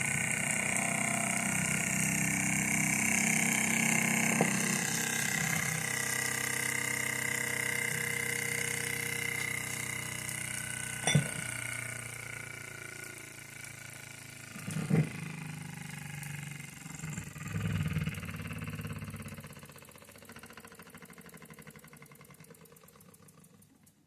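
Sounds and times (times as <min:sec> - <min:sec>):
model steam engine humming: 0:00.0 - 0:18.9.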